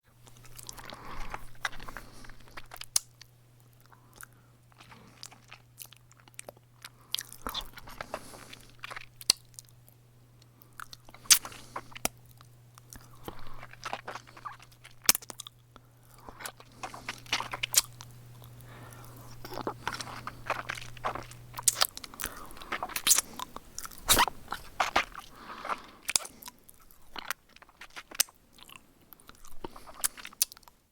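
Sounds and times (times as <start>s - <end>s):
low steady hum: 0.0s - 30.9s
wet thumb sucking sounds: 16.2s - 26.5s.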